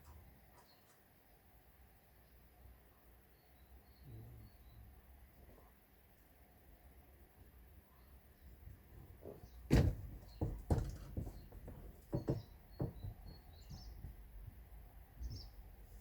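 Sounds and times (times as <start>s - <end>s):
faint birds chirping: 0.0s - 16.0s
irregular knocks and thuds: 9.2s - 15.6s.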